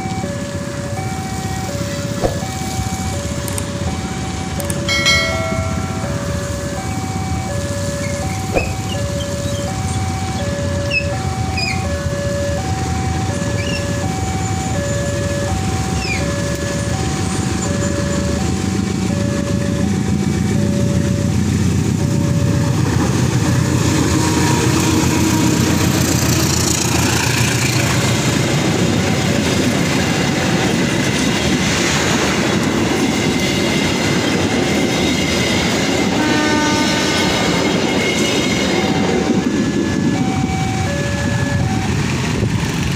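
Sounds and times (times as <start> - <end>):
crossing alarm two-tone chime: 0.0 - 23.0, 35.9 - 42.4
wheel-on-rail noise: 0.0 - 42.9
train horn: 23.7 - 26.7, 36.0 - 38.2.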